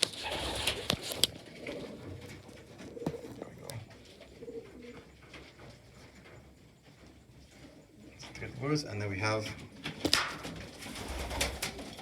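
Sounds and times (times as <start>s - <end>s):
pigeons cooing: 0.0s - 6.4s, 10.6s - 12.0s.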